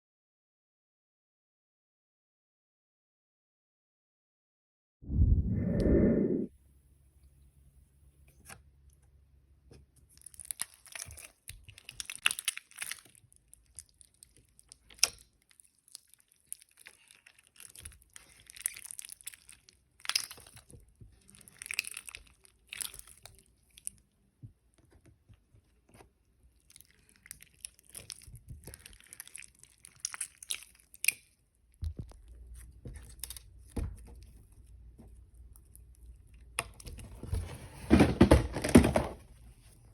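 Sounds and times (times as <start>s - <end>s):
slime crackling and crunching: 10.1s - 24.0s, 26.5s - 31.4s.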